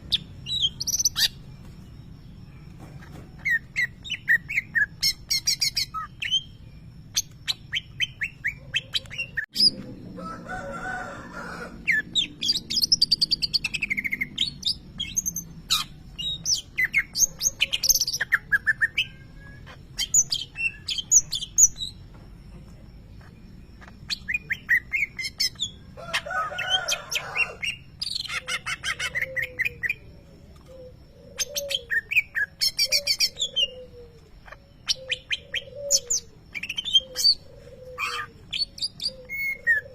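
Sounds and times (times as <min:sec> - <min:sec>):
bird singing shrill chirps and trills: 0:00.0 - 0:39.9
harsh rasping bird calls: 0:23.2 - 0:39.9.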